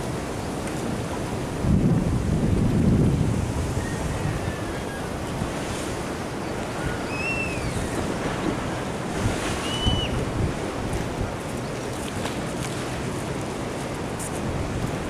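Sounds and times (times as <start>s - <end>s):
ocean surf washing on sea wall: 0.0s - 15.0s
wind buffeting microphone: 1.0s - 11.7s
short high whistles: 7.0s - 7.8s, 9.6s - 10.2s.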